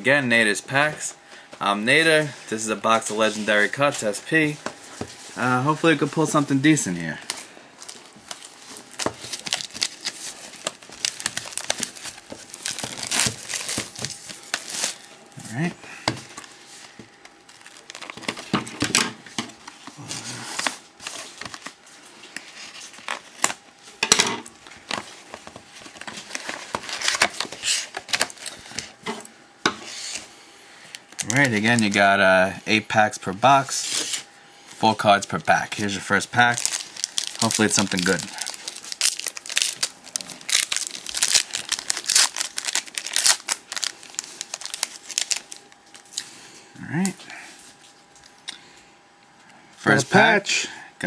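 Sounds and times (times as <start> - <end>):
packaging crinkling and tearing: 7.8 - 18.9, 19.6 - 23.6, 24.6 - 29.0, 31.0 - 32.1, 36.2 - 46.3.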